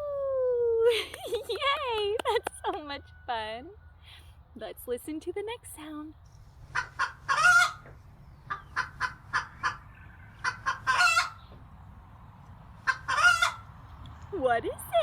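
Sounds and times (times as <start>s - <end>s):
hen clucking: 6.7s - 11.6s, 12.8s - 13.7s.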